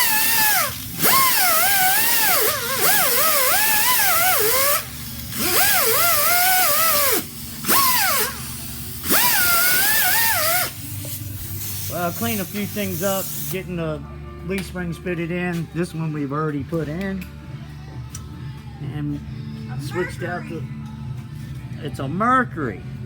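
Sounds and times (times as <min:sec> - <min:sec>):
power tool whining: 0:00.0 - 0:13.7
strong hiss: 0:08.4 - 0:13.7.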